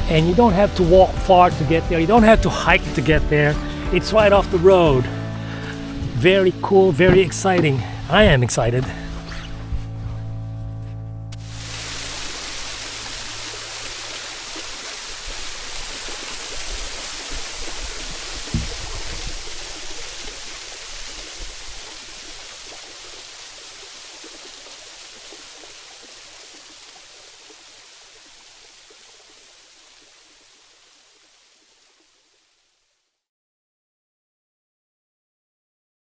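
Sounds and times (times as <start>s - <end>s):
waterfall rushing: 0.0s - 9.7s, 11.4s - 30.2s
low thump: 7.0s - 11.0s, 18.5s - 19.6s.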